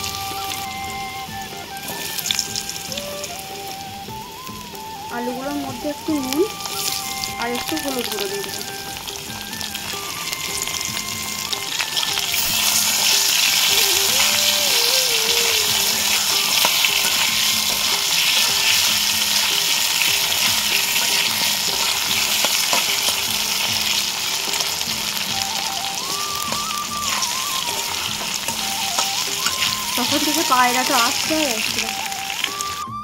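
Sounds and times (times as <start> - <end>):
potatoes sizzling in hot oil: 0.0 - 32.8
metal spatula stirring: 15.7 - 25.1, 26.5 - 31.3.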